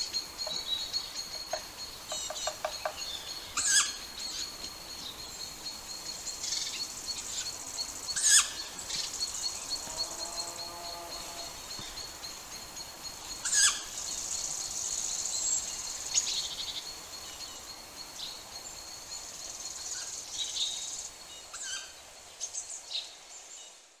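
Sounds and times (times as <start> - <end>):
birds chirping: 0.0 - 9.8
high insect-like buzz: 0.0 - 16.2.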